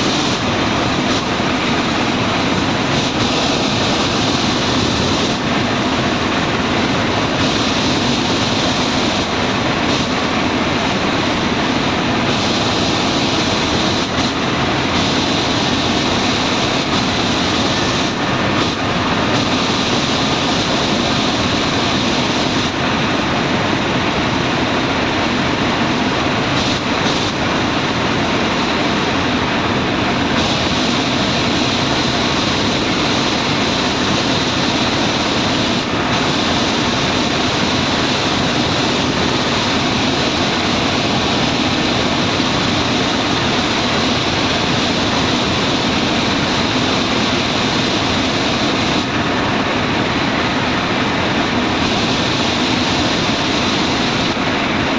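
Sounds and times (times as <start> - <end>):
helicopter engine and rotor: 0.0 - 54.9.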